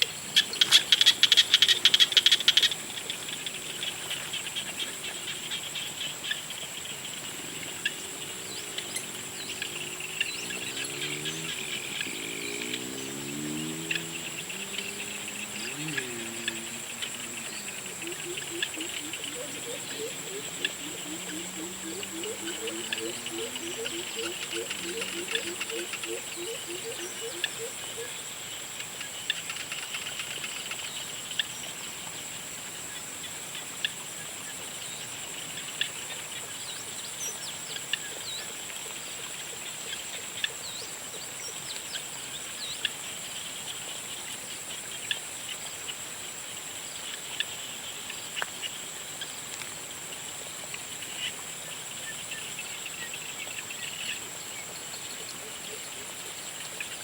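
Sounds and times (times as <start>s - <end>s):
frog calls: 0.0s - 28.3s
insect trill: 0.0s - 57.0s.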